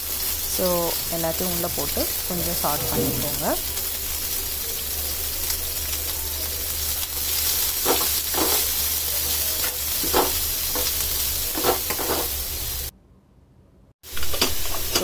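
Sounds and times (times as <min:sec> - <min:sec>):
food sizzling in hot oil: 0:00.0 - 0:12.9, 0:14.0 - 0:15.0
metal spoon scraping a pan: 0:11.5 - 0:12.4.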